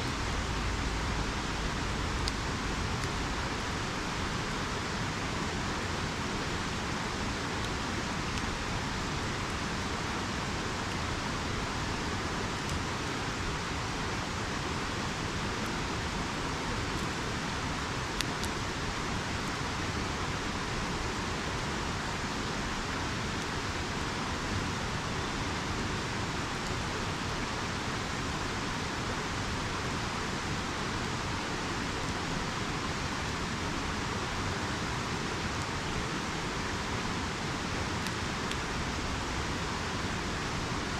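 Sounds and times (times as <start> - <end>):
river rushing: 0.0 - 40.9
campfire crackles and pops: 0.3 - 5.8, 7.4 - 21.6, 34.7 - 39.6.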